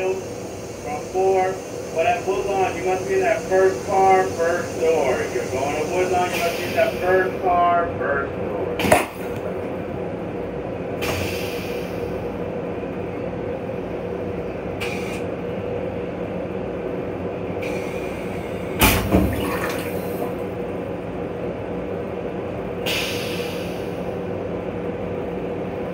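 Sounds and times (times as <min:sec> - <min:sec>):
railcar rumble and hum: 0:00.0 - 0:25.9
short hisses: 0:11.0 - 0:12.2, 0:14.8 - 0:15.3, 0:22.8 - 0:24.1.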